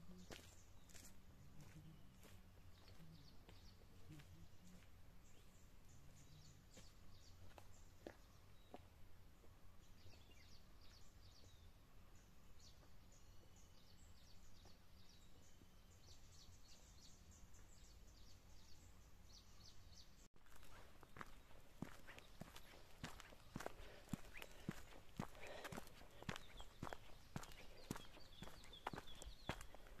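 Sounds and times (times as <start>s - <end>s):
small birds chirping and twittering: 0.0s - 30.0s
footsteps: 20.5s - 30.0s.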